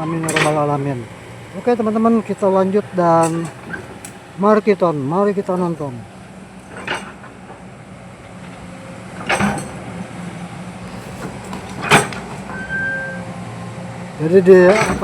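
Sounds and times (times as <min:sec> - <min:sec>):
excavator diesel engine running: 0:00.0 - 0:15.0
sharp knocks: 0:09.2 - 0:10.1.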